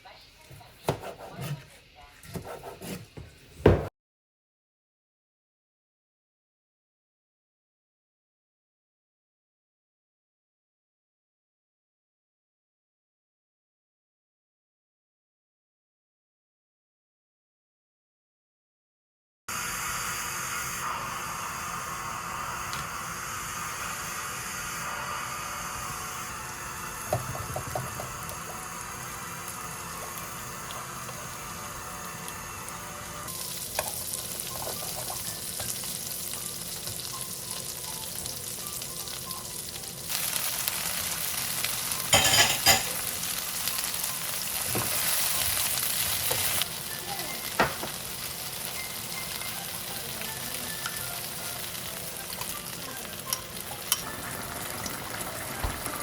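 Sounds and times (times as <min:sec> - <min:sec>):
food sizzling in a pan: 0:19.5 - 0:56.0.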